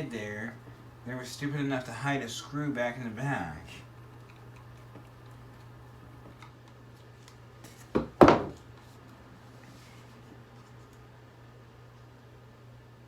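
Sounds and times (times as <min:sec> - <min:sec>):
low steady hum: 0:00.0 - 0:13.0
hard parts knocking on a surface: 0:08.0 - 0:08.6.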